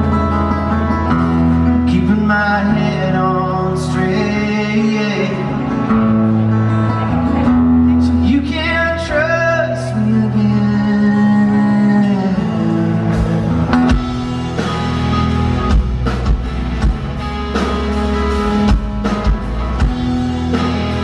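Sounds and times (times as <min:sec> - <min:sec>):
rock band playing live: 0:00.0 - 0:21.0
man singing: 0:01.5 - 0:06.4, 0:07.8 - 0:14.0.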